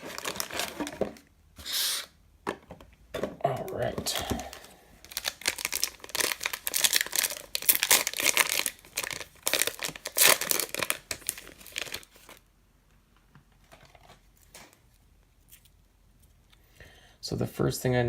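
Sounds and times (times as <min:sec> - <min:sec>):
plastic wrapper crinkling and tearing: 0:00.0 - 0:01.2, 0:04.1 - 0:12.4.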